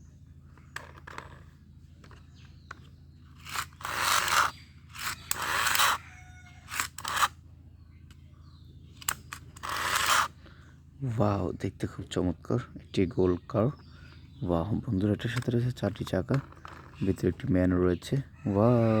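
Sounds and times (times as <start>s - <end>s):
sharp plastic clicks: 8.9s - 10.2s.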